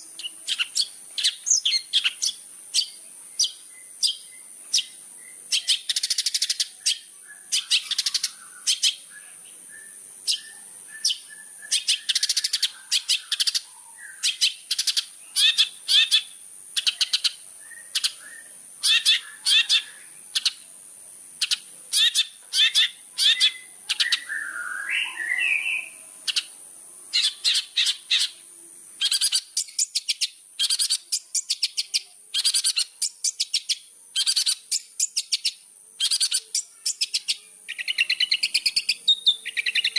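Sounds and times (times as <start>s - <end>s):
bird harsh chattering song: 0.0s - 20.7s, 21.4s - 39.9s
bird warbling phrase: 18.8s - 20.2s, 21.9s - 28.4s.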